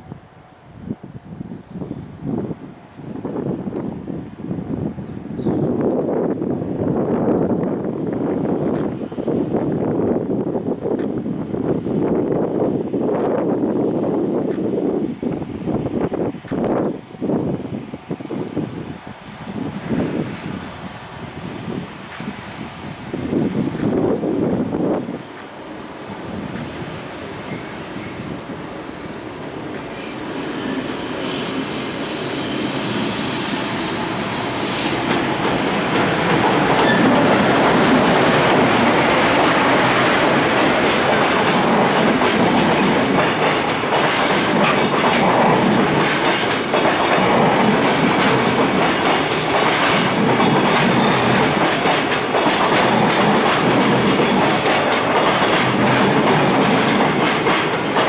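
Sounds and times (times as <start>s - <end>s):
train wheel squeal: 4.8s - 5.9s, 19.3s - 21.1s, 26.1s - 58.0s
train wheels clattering over rail joints: 28.8s - 58.0s.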